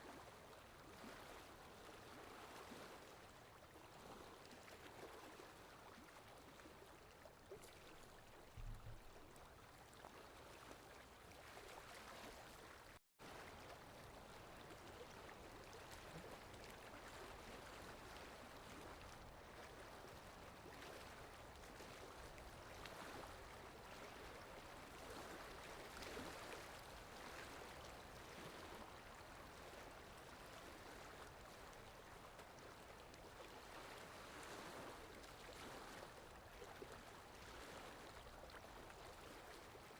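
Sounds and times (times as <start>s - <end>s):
stream running water: 0.0s - 39.9s
soft low thump: 8.5s - 9.2s.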